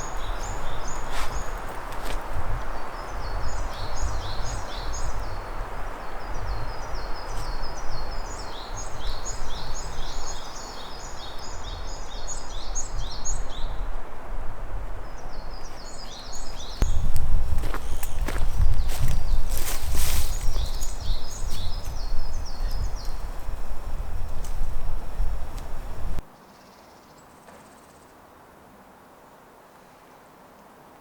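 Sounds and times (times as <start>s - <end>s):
songbird singing: 0.0s - 28.1s.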